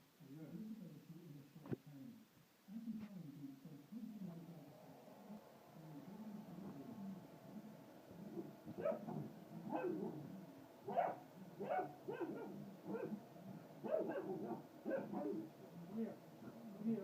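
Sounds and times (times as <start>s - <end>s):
dog barking: 8.3s - 10.2s, 10.9s - 13.2s, 13.8s - 15.5s.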